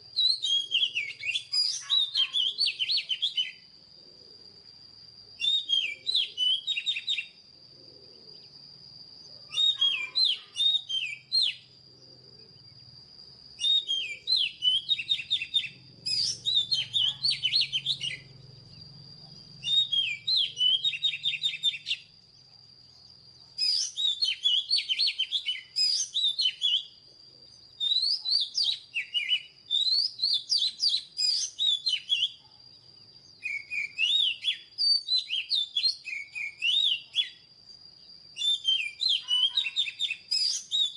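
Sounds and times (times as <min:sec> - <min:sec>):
bird singing whistled phrases: 0:00.1 - 0:03.7, 0:05.4 - 0:07.4, 0:09.4 - 0:11.8, 0:13.6 - 0:18.4, 0:19.5 - 0:22.1, 0:23.0 - 0:27.0, 0:27.7 - 0:32.4, 0:33.2 - 0:37.5, 0:38.1 - 0:40.9.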